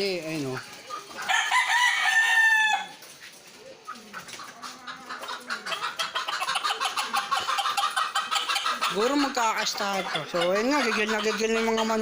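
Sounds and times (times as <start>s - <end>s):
chickens clucking: 0.0s - 12.0s
rooster crowing: 1.3s - 3.0s
pigeon cooing: 3.5s - 9.3s.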